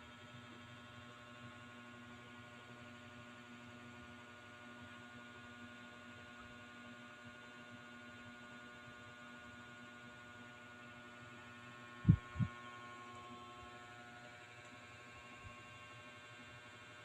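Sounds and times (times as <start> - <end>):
faint steady hum: 7.8 - 17.0.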